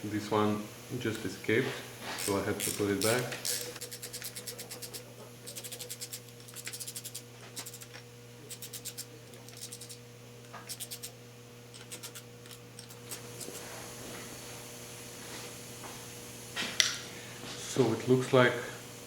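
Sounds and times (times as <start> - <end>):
steady low hum: 0.0 - 17.8
ratchet wrench clicking: 2.2 - 13.7.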